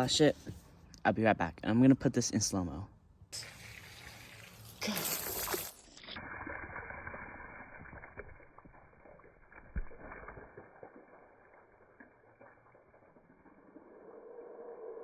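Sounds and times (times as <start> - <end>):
slowed-down water sloshing rumble: 6.1 - 15.0.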